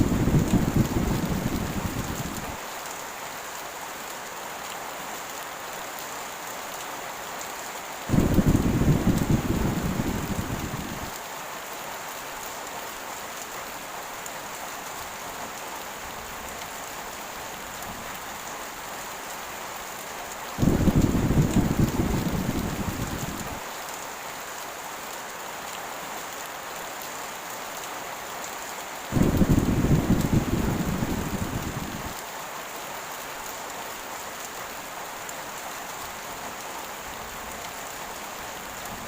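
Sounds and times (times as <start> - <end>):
low thunder rumbles: 0.0 - 2.6, 8.1 - 11.1, 20.6 - 23.6, 29.1 - 32.2
heavy rain hissing: 0.0 - 4.2, 7.8 - 15.4, 16.0 - 25.2, 28.8 - 33.2.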